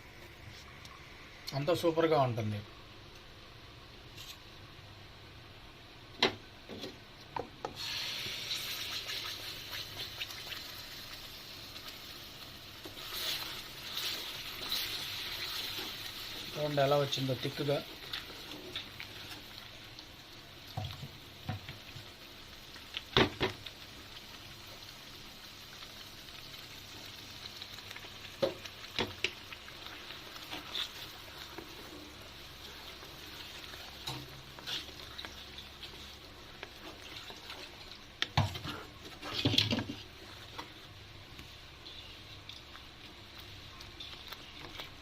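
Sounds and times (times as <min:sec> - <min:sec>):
paste sizzling in oil: 0:07.6 - 0:45.0.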